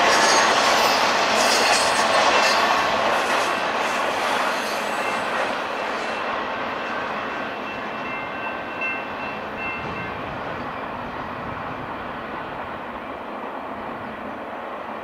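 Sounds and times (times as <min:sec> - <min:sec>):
freight train rail noise: 0:00.0 - 0:15.0.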